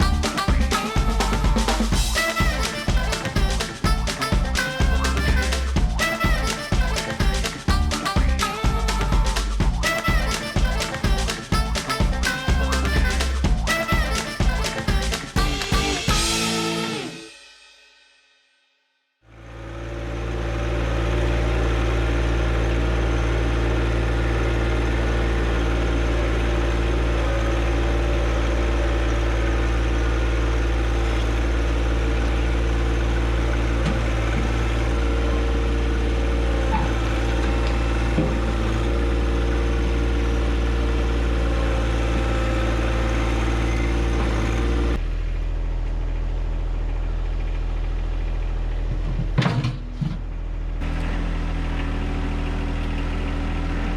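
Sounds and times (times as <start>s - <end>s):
tractor diesel engine running: 0.0s - 17.1s, 19.3s - 53.9s.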